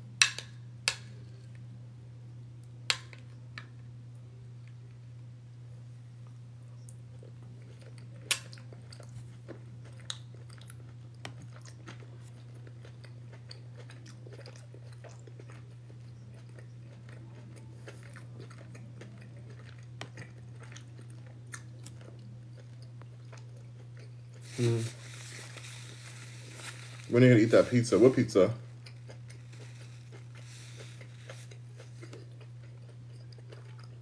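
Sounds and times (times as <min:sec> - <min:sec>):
steady low hum: 0:00.0 - 0:34.0
person chewing food: 0:06.2 - 0:27.2, 0:28.7 - 0:34.0.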